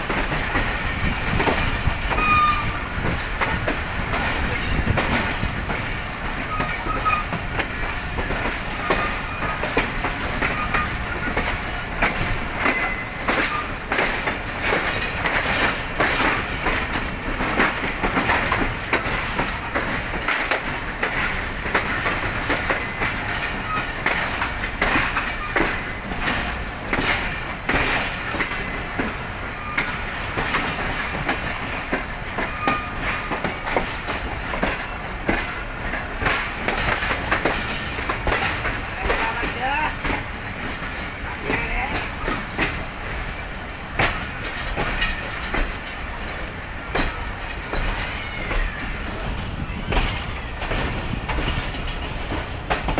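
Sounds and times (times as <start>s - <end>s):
clicks and clatter of rails: 0.0s - 52.9s
train wheels rumbling on track: 0.0s - 52.9s
faint wheel squeals: 2.1s - 2.9s, 47.0s - 50.8s.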